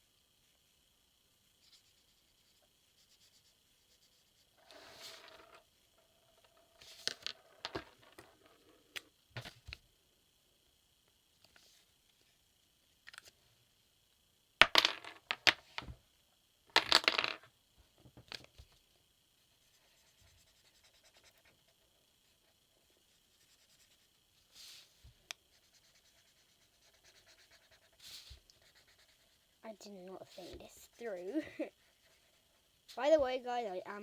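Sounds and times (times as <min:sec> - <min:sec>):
pen scratching on paper: 0:19.6 - 0:21.6, 0:22.4 - 0:24.8, 0:25.5 - 0:29.6.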